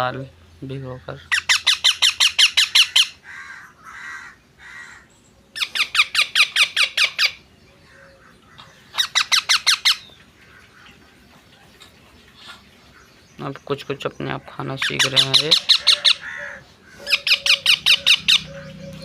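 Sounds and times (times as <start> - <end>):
baby parrot squawking: 1.2 - 10.7, 14.8 - 19.0.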